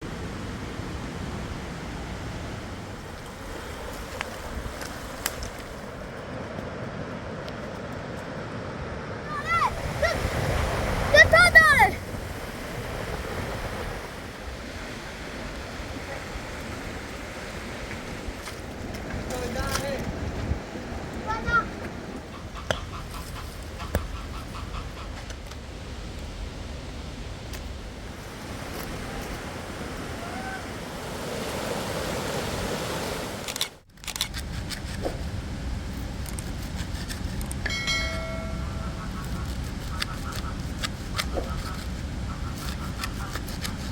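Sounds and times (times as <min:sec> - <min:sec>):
river water rushing: 0:00.0 - 0:19.6, 0:27.8 - 0:33.8.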